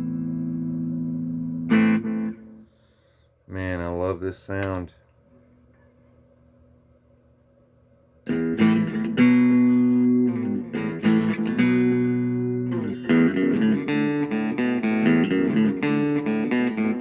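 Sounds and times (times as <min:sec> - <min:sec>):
electric guitar chords and notes: 0:00.0 - 0:02.9, 0:08.2 - 0:17.0
faint amp hum: 0:00.0 - 0:17.0.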